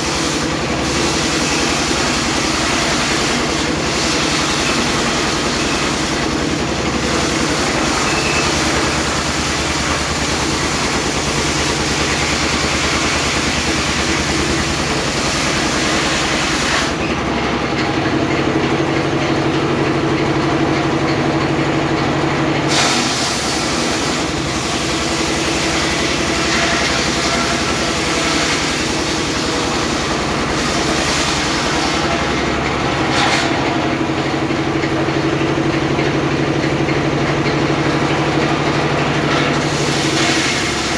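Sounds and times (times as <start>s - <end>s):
engine drone: 0.0s - 40.9s
high saw hiss: 7.0s - 17.0s.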